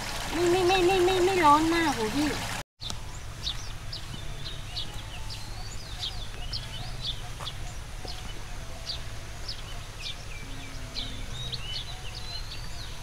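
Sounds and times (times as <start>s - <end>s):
birds chirping: 0.3s - 13.0s.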